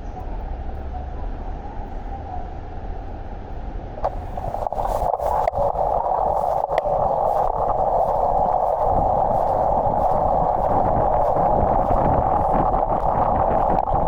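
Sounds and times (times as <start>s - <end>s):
wind noise: 0.0s - 14.0s
bicycle tyres on wet road: 4.0s - 14.0s.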